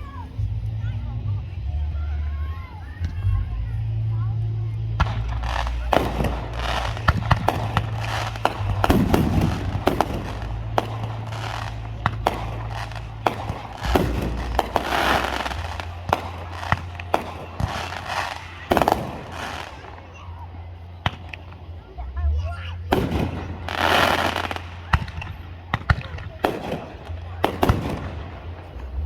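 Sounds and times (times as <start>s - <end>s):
fireworks bangs: 5.0s - 21.9s, 22.9s - 29.0s
fireworks crackling: 5.0s - 22.2s, 22.8s - 29.0s.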